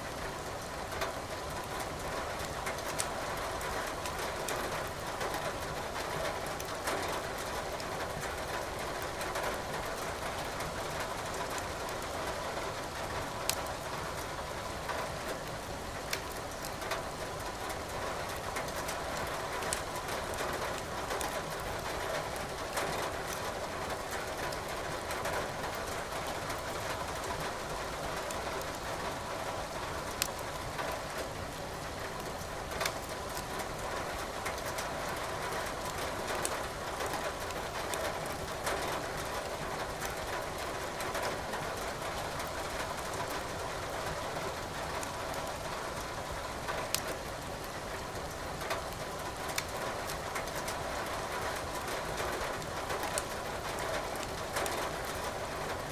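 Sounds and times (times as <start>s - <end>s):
wood fire crackling and popping: 13.4s - 13.6s, 15.5s - 16.7s, 30.1s - 30.5s, 32.8s - 33.8s, 46.9s - 47.1s, 49.0s - 50.8s, 52.9s - 55.2s.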